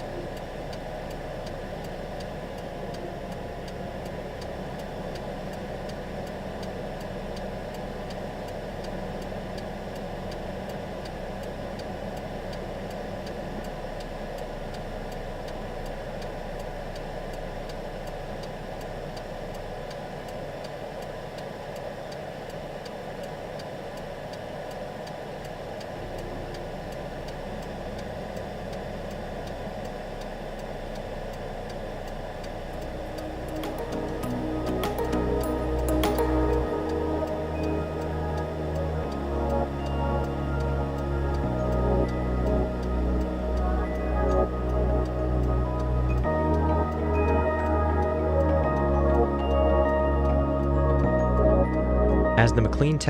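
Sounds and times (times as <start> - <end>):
engine-like rumble: 0.0 - 53.0
regular ticking: 0.0 - 53.0.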